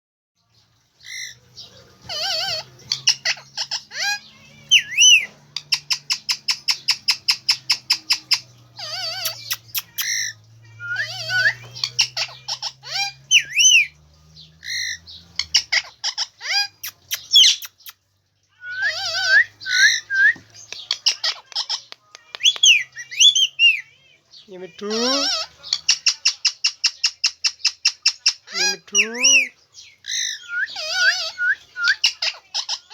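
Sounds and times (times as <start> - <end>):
parakeet chirps and squawks: 0.9 - 32.9
parakeet chattering: 2.0 - 14.0, 14.6 - 18.1, 18.7 - 32.9
parakeet whistled notes: 8.9 - 11.7, 30.3 - 32.1.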